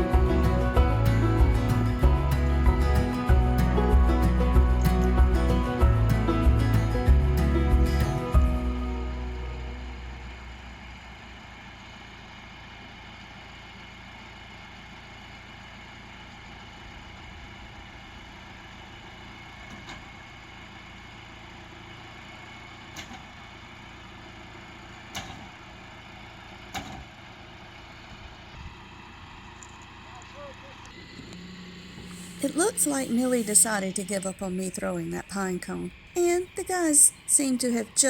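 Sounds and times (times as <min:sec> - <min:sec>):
background music: 0:00.0 - 0:10.3, 0:32.2 - 0:38.0
tractor engine running: 0:00.0 - 0:38.0.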